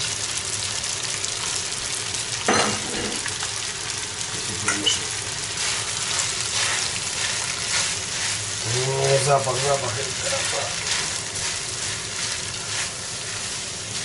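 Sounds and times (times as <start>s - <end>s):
food sizzling in hot oil: 0.0s - 14.0s
utensil scraping pot: 4.7s - 14.0s.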